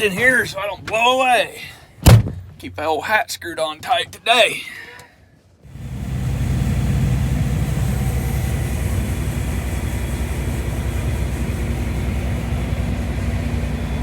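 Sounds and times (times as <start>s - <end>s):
farm machinery engine running: 5.7s - 14.0s.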